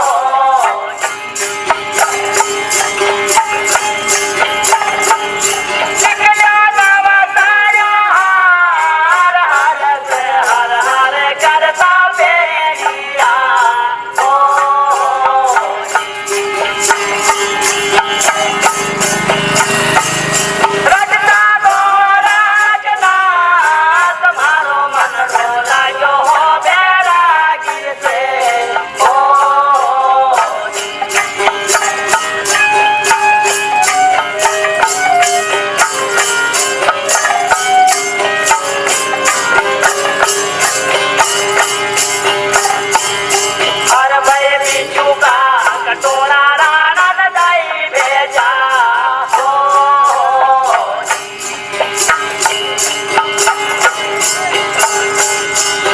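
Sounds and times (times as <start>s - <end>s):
jingling percussion beat: 0.0s - 55.9s
wavering melody: 0.0s - 55.9s
drone: 16.6s - 20.9s.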